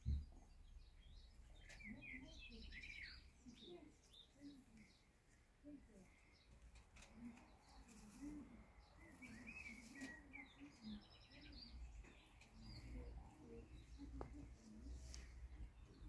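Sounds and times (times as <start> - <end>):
high bird chirps: 0.1 - 5.0
bird cooing: 7.0 - 15.1.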